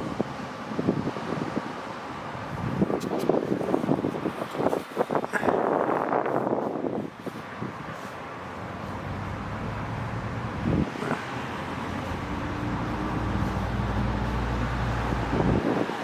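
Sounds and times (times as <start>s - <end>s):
car engine humming: 8.2s - 16.0s.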